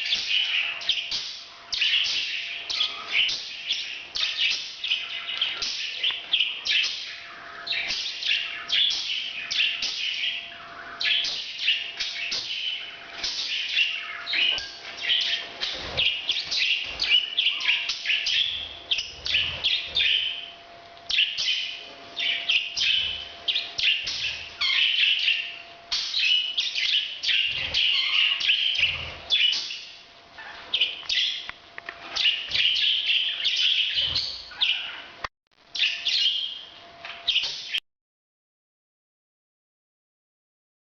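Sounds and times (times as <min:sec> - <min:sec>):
parrots chirping and twittering: 0:00.0 - 0:37.8.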